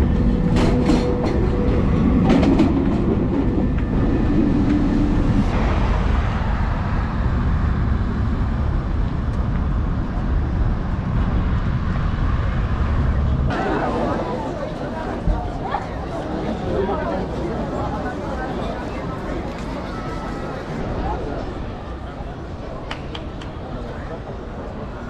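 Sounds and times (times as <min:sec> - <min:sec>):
vehicle rumble in motion: 0:00.0 - 0:13.6
hum: 0:02.9 - 0:13.6.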